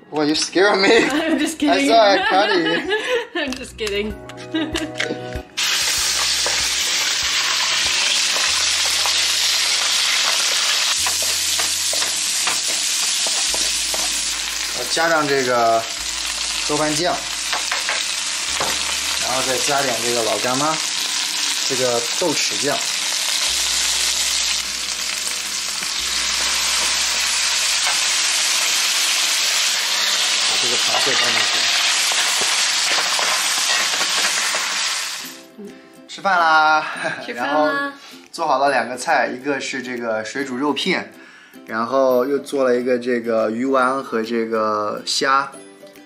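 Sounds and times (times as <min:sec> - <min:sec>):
food sizzling in oil: 0:05.6 - 0:35.5.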